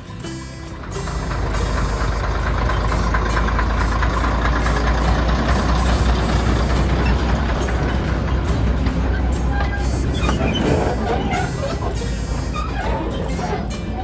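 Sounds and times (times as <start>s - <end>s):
train diesel engine rumbling: 0.0s - 14.0s.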